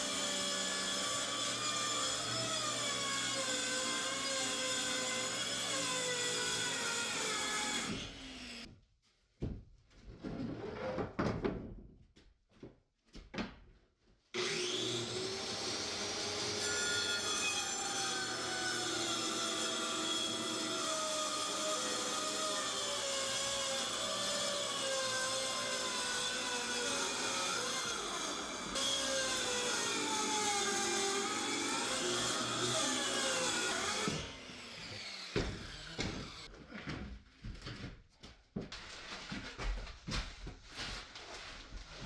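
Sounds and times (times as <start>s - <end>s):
power saw cutting wood: 0.0s - 8.7s, 14.4s - 36.5s.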